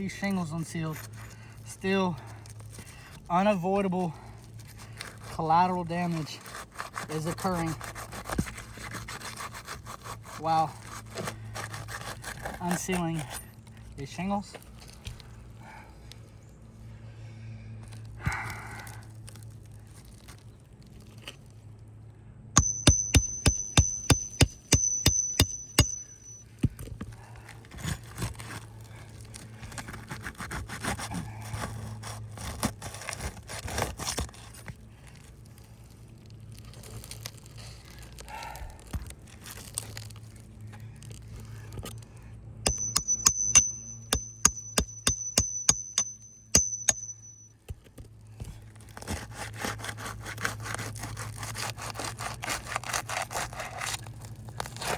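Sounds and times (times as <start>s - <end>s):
hammer tapping on metal tool: 22.6s - 26.4s, 42.7s - 47.9s.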